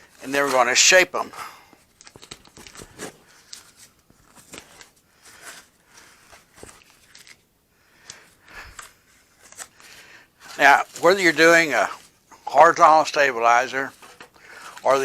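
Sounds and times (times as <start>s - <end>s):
tape being peeled off: 1.9s - 7.4s.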